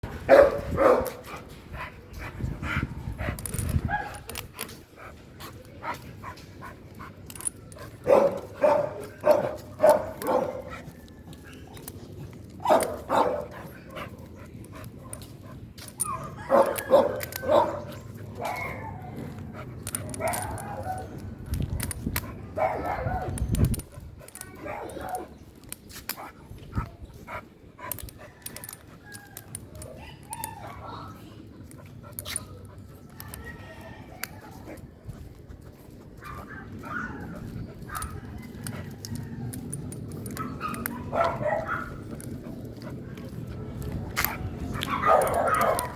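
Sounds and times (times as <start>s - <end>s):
dog barking: 0.3s - 1.2s, 8.0s - 10.8s, 12.6s - 13.5s, 16.1s - 18.9s, 22.6s - 23.4s, 24.6s - 25.2s, 40.4s - 42.0s, 44.8s - 45.9s.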